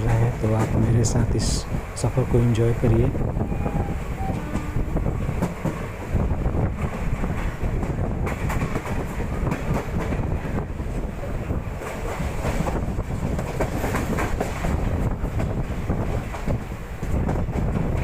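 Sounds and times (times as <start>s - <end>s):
train rumble: 0.0s - 18.0s
wind rushing past: 2.8s - 18.0s
train wheels clattering over rail joints: 4.4s - 11.1s, 11.7s - 18.0s.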